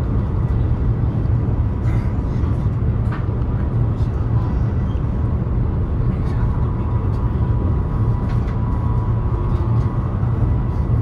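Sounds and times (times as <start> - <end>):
train rumble inside carriage: 0.0 - 11.0.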